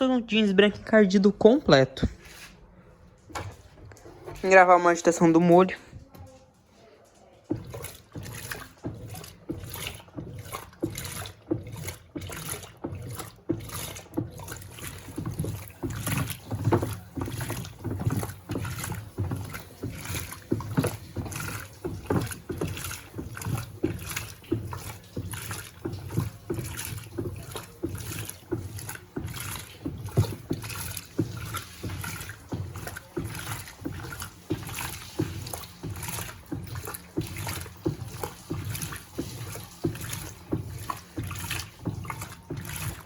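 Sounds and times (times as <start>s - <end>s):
washing machine agitator sloshing: 0.0s - 43.0s.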